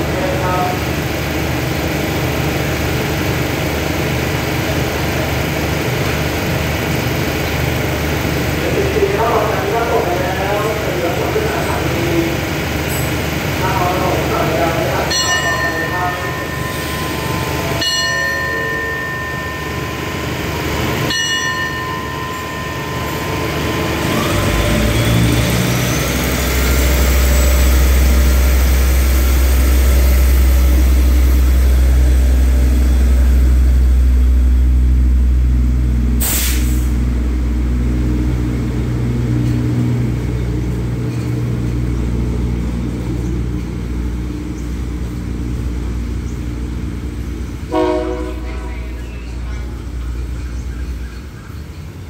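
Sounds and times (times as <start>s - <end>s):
diesel train engine rumble: 0.0s - 52.0s
rising engine whine: 0.0s - 52.0s
steady high tone: 13.8s - 40.4s.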